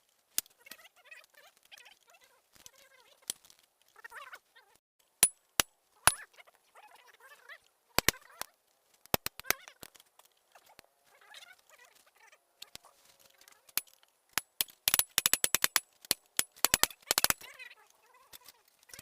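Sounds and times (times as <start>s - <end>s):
sharp clicks and taps: 9.0s - 10.3s, 13.7s - 17.5s.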